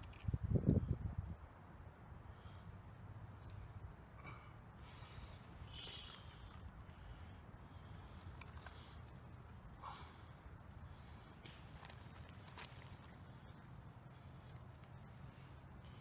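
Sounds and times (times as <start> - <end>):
wind rumble on microphone: 0.0 - 1.8.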